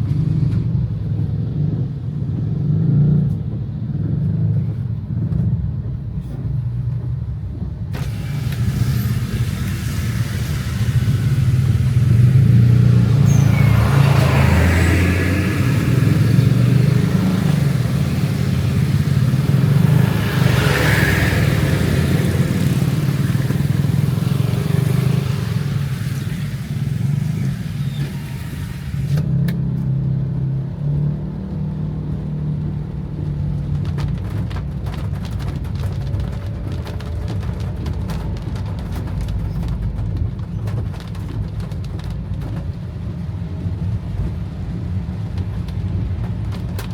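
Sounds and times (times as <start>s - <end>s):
car engine and road rumble: 0.0s - 46.9s
tyre and rain hiss: 7.9s - 29.2s.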